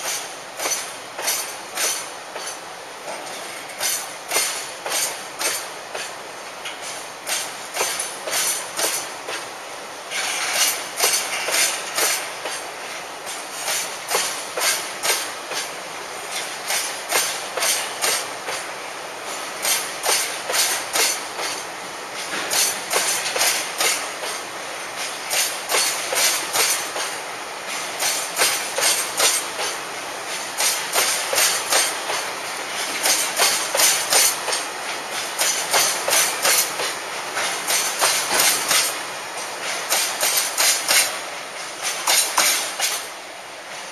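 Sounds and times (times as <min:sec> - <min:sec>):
wheels clacking over rail joints: 0:00.0 - 0:43.9.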